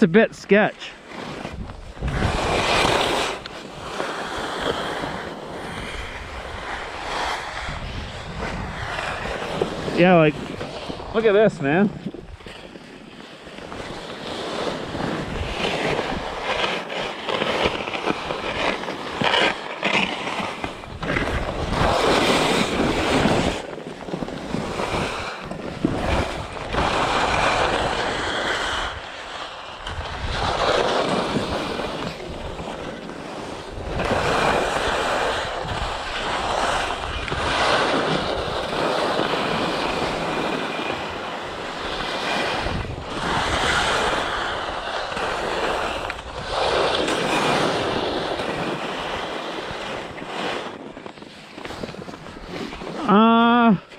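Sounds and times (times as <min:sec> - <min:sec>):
skis scraping on hard snow: 0:00.0 - 0:53.2
wind noise on microphone: 0:01.2 - 0:53.9.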